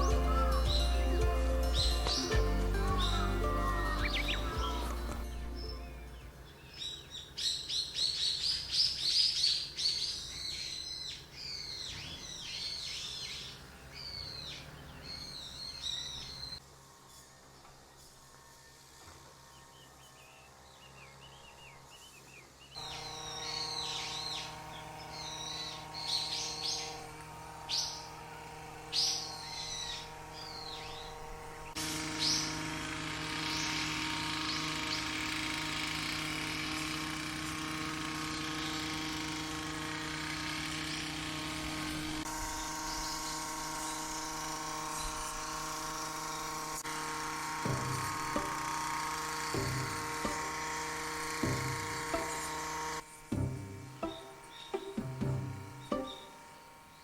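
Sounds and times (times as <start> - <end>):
droning level tones: 0.0 - 6.6, 22.8 - 57.0
small birds chirping: 0.0 - 57.0.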